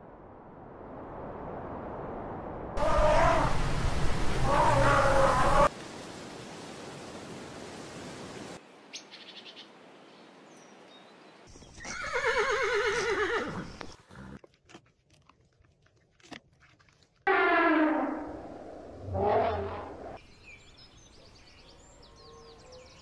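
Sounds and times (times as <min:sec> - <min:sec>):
horse whinnying: 0:11.8 - 0:14.4.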